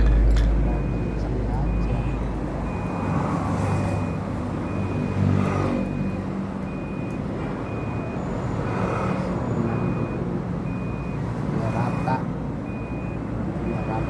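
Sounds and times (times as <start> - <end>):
engine humming: 0.0 - 4.9
reversing alarm beeping: 0.0 - 14.0.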